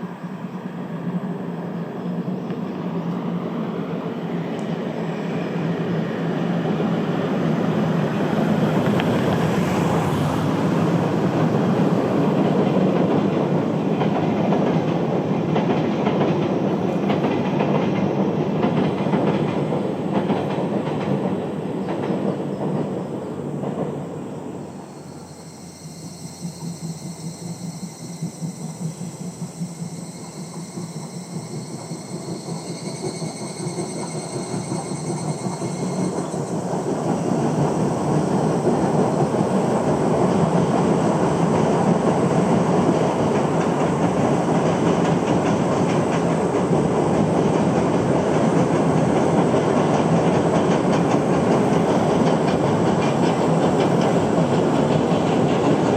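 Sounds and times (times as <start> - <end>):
pulsing train sound: 0.0 - 55.9
train wheels clacking over rail joints: 10.8 - 24.1, 26.4 - 55.9.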